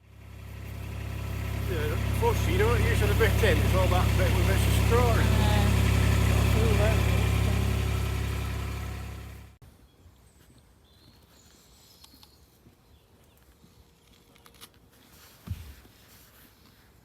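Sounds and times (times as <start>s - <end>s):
vehicle engine idling: 0.0s - 9.6s.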